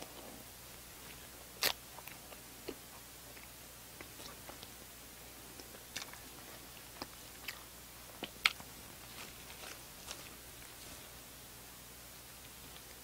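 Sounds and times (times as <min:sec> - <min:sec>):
person chewing: 0:01.0 - 0:04.8, 0:05.4 - 0:11.3.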